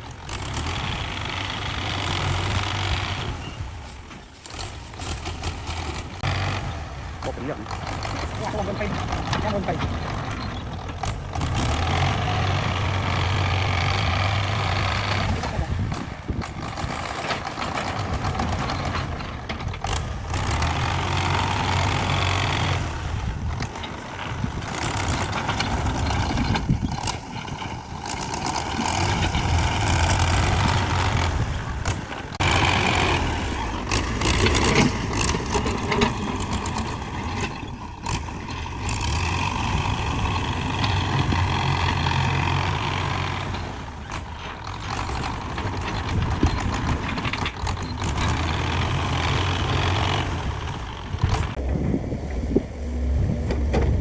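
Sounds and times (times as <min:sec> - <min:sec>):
heavy diesel machinery working: 0:00.0 - 0:54.0
trucks running: 0:00.0 - 0:54.0.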